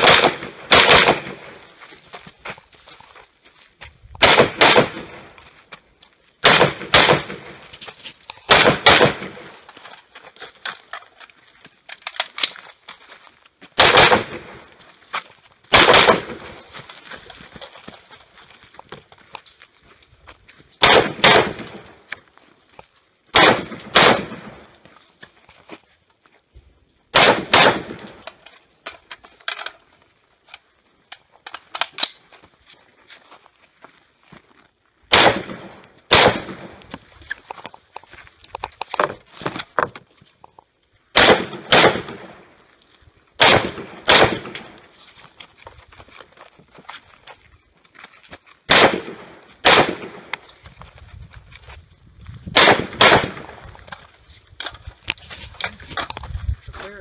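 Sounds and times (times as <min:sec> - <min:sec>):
rifle shots in quick pairs: 0:00.0 - 0:01.6, 0:04.2 - 0:05.4, 0:06.4 - 0:07.6, 0:08.5 - 0:09.5, 0:13.8 - 0:14.6, 0:15.7 - 0:16.6, 0:20.8 - 0:22.0, 0:23.3 - 0:24.6, 0:27.1 - 0:28.4, 0:35.1 - 0:36.8, 0:41.1 - 0:42.5, 0:43.4 - 0:44.9, 0:48.7 - 0:50.4, 0:52.5 - 0:53.6.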